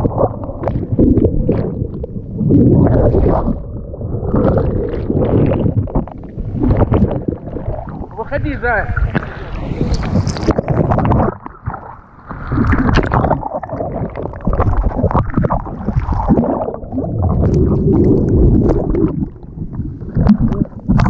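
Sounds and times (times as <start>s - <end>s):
water rumbling and gurgling: 0.0s - 21.0s
stormy sea surf splashing: 6.4s - 11.4s.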